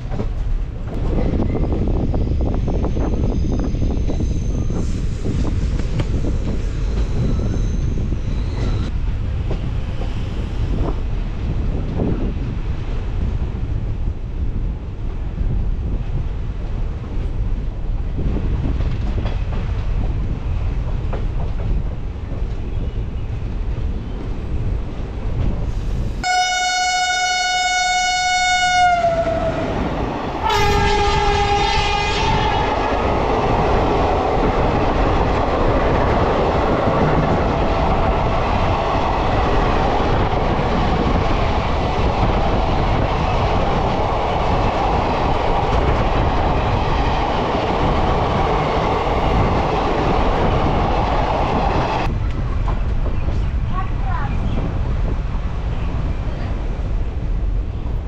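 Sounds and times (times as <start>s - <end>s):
train running noise: 0.0s - 58.0s
train horn: 26.2s - 29.8s, 30.4s - 32.8s.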